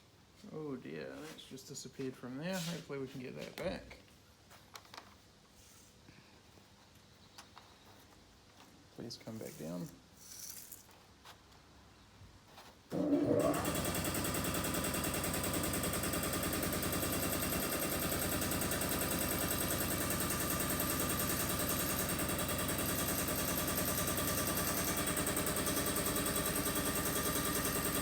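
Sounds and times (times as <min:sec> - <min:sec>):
motor machine pulsing: 0:12.9 - 0:28.0.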